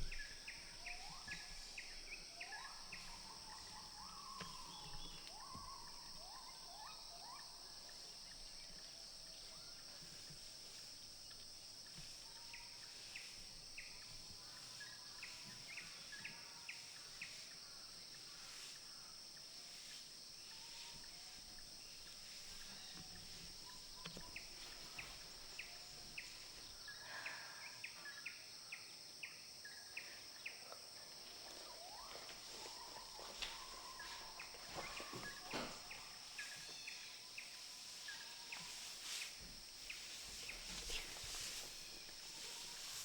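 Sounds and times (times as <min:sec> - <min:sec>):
bird chirping: 0:00.0 - 0:10.2, 0:20.4 - 0:43.0
high insect drone: 0:00.0 - 0:43.0.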